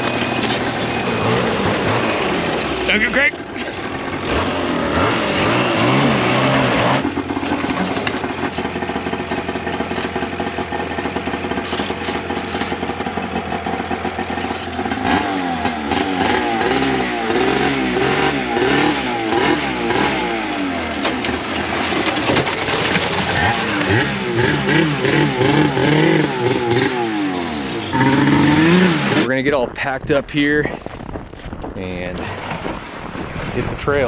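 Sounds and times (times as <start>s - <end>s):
engine revving: 0.0s - 30.8s.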